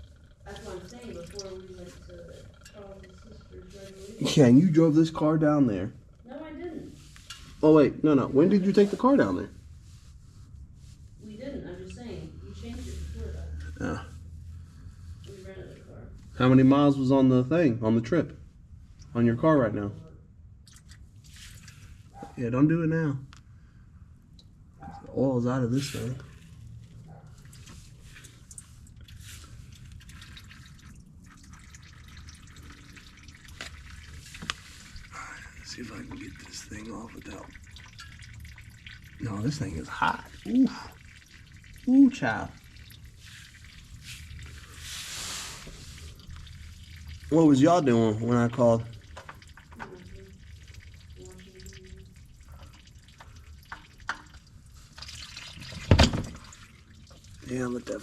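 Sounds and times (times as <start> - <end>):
oil dripping into pan: 0.0 - 3.7, 20.6 - 22.0, 26.0 - 58.0.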